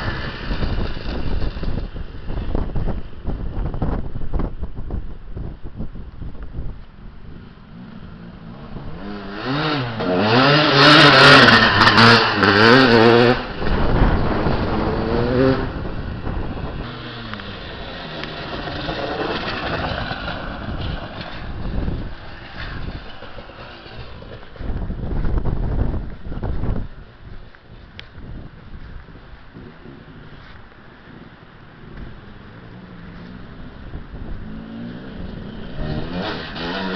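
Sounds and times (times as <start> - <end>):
motocross bike passing: 0.0 - 4.9, 7.2 - 27.1, 28.3 - 36.9.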